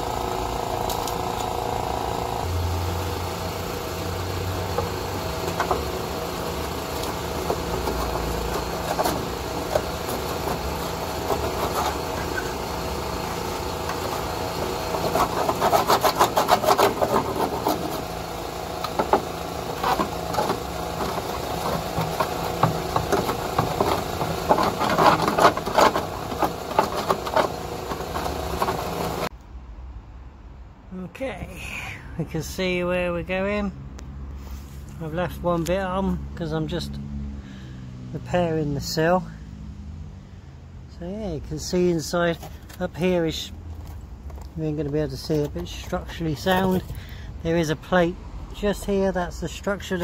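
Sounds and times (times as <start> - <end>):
angle grinder cutting steel: 0.0 - 29.3.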